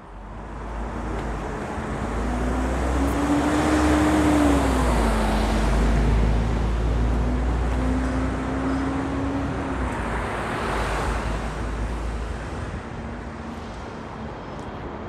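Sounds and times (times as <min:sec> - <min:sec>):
vehicle passing close by: 0:00.5 - 0:11.6.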